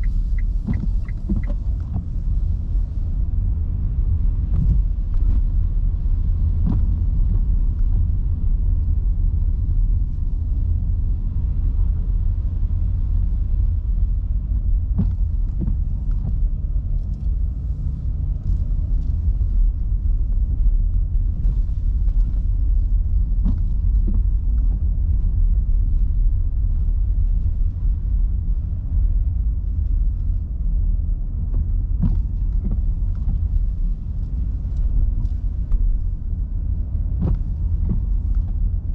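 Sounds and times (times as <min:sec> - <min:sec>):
light ticks: 0:00.0 - 0:02.2
car tyres on wet road: 0:00.0 - 0:38.9.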